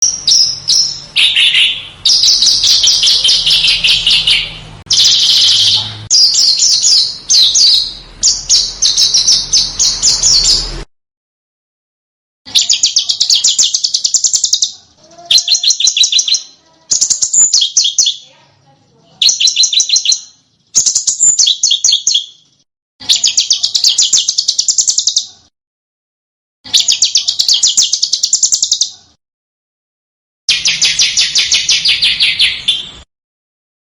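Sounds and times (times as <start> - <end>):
small bird trilling: 0.0 - 10.8, 12.5 - 18.4, 19.2 - 22.4, 23.0 - 25.3, 26.7 - 28.9.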